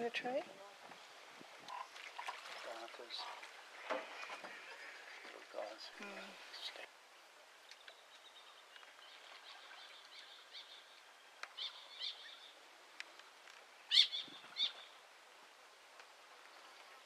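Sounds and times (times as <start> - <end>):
wetland birds calling: 1.7 - 3.5, 7.8 - 12.6, 13.8 - 15.0
faint background chirping: 4.2 - 12.7, 13.8 - 15.0.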